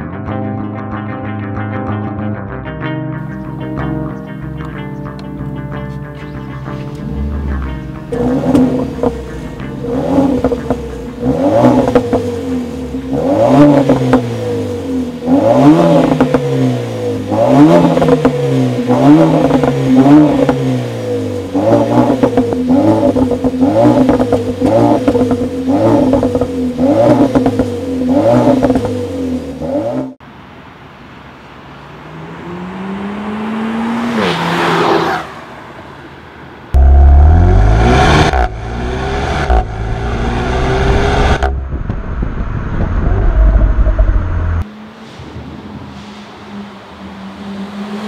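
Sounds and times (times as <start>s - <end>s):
car engine revving: 5.9s - 30.2s, 31.7s - 35.5s, 36.7s - 45.0s.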